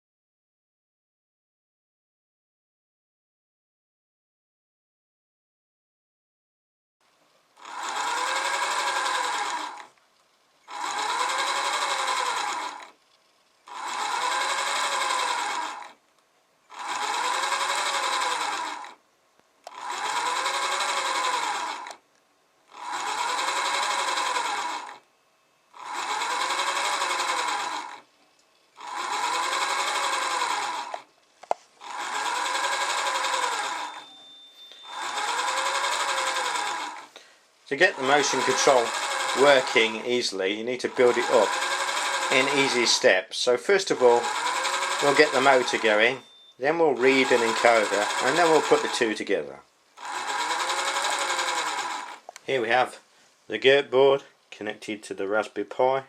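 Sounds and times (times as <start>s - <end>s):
small electric motor whine: 7.6s - 10.0s, 10.7s - 13.0s, 13.6s - 16.0s, 16.7s - 19.0s, 19.7s - 22.0s, 22.7s - 25.1s, 25.7s - 28.1s, 28.8s - 31.1s, 31.8s - 43.1s, 43.8s - 49.3s, 50.0s - 52.4s.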